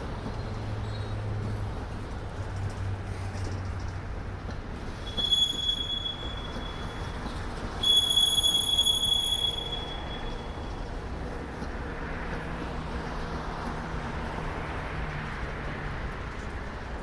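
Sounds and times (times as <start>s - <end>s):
freight train cars rumbling: 0.0s - 17.0s
train wheel squeal: 0.2s - 1.6s, 4.8s - 11.5s.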